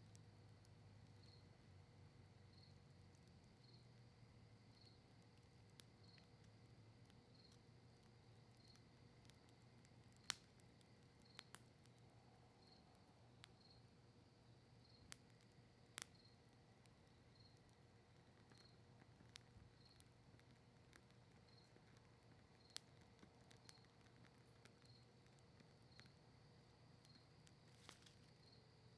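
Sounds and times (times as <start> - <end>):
campfire crackling: 0.0 - 28.9
low steady hiss: 0.0 - 28.9
sharp fire pops: 10.1 - 11.8, 27.1 - 28.3.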